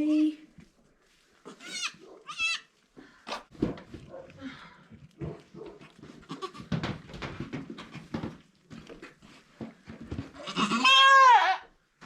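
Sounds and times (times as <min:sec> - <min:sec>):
goat bleating loudly: 0:01.5 - 0:02.7, 0:06.2 - 0:06.7, 0:10.4 - 0:11.7.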